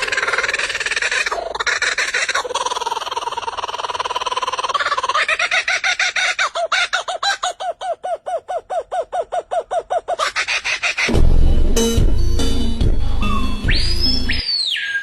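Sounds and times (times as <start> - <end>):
music: 11.1 - 14.4.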